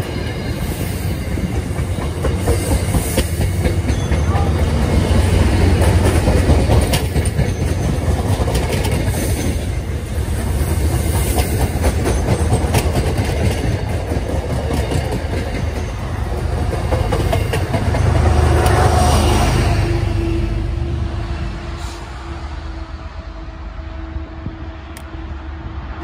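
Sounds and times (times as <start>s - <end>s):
train cars rumbling: 0.0s - 26.0s
wheels clicking over rail joints: 1.4s - 9.9s, 10.8s - 19.0s.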